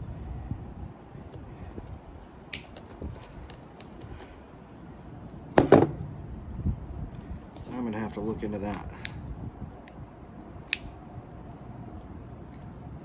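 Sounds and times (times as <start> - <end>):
tool knocking on bench: 5.6 - 6.0.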